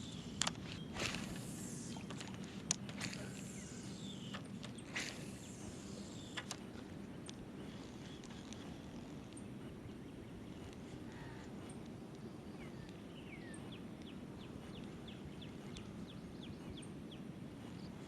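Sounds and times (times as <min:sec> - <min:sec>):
steady low background hum: 0:00.0 - 0:18.0
faint bird calls: 0:02.9 - 0:06.6, 0:07.6 - 0:13.8.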